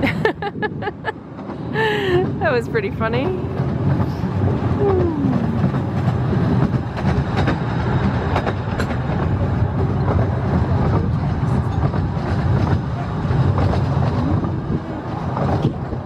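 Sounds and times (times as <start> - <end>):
railway carriage rumbling on track: 0.0 - 16.0
wheels clicking on rails: 0.0 - 16.0.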